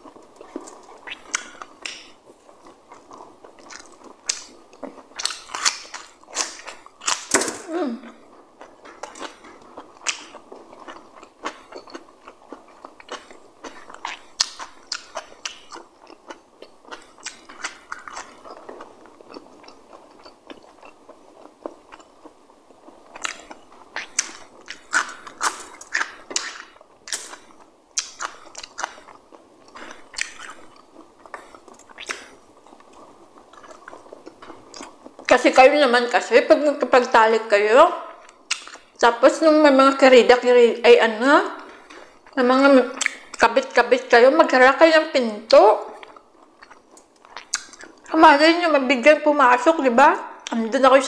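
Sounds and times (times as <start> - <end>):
person chewing and crunching food: 0.0 - 35.4, 38.1 - 39.0, 41.6 - 43.8, 45.5 - 48.2.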